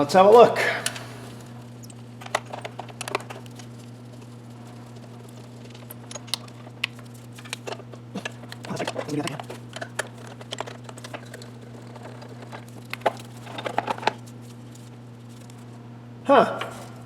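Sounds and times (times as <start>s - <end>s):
steady low hum: 0.0s - 17.0s
hand tools clicking and tapping: 5.5s - 14.2s.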